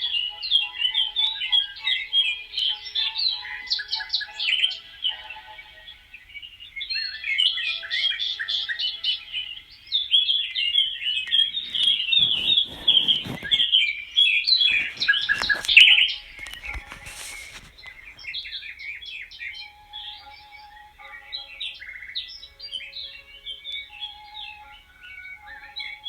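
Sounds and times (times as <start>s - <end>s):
small birds chirping: 0.0s - 26.0s
sharp clicks or rustles: 11.3s - 13.7s, 14.6s - 18.4s.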